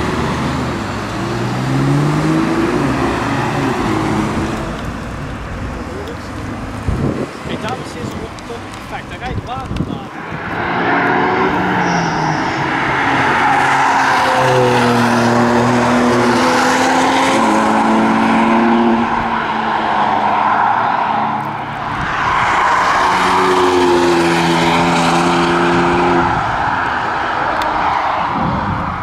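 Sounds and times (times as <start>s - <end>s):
car engine accelerating through gears: 0.0s - 8.9s, 10.3s - 20.3s.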